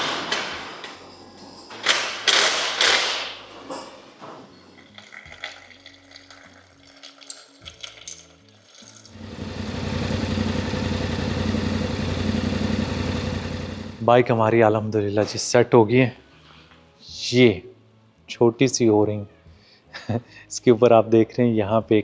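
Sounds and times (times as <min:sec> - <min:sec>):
motorcycle engine idling: 0:09.2 - 0:14.0.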